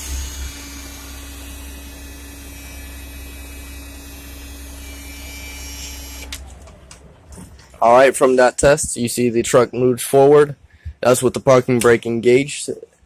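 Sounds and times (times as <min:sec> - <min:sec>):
truck engine idling: 0:00.0 - 0:09.4
steady hum: 0:00.0 - 0:11.8.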